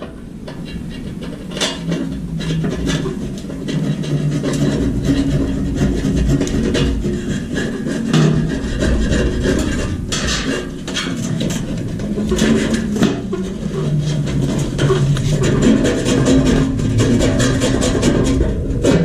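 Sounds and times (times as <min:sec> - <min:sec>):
knocks clicks and scraping: 0:00.0 - 0:19.0
steady low hum: 0:00.0 - 0:19.0.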